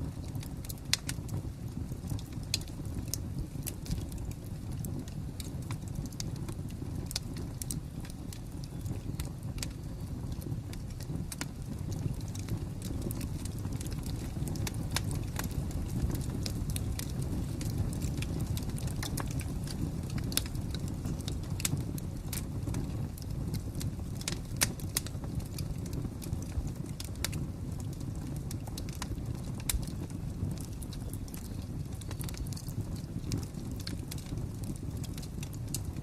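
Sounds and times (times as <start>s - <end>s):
low rumble of burning: 0.0s - 36.0s
wood fire crackling: 0.0s - 36.0s.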